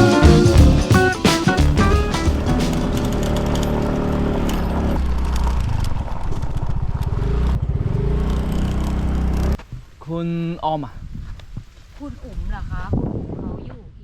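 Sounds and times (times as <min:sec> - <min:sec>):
scooter engine running: 0:00.0 - 0:05.0.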